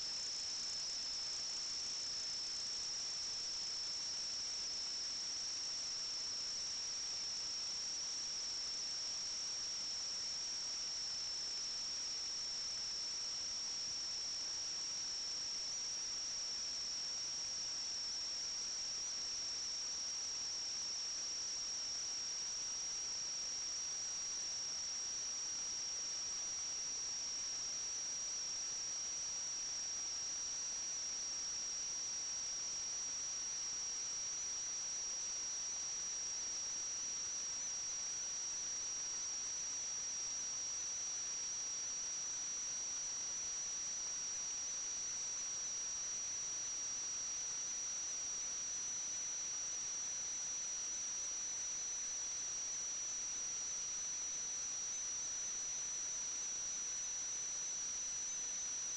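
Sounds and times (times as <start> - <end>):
constant hiss: 0.0 - 58.9.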